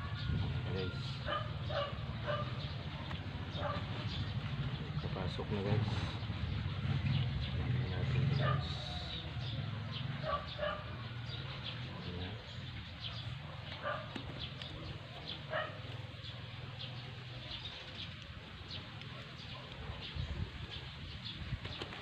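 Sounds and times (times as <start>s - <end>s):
birds calling: 0.0s - 22.0s.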